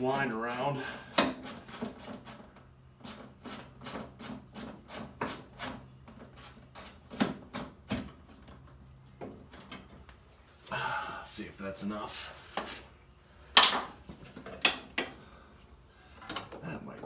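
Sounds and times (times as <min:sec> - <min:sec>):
hand tool rasping strokes: 0:00.0 - 0:02.4.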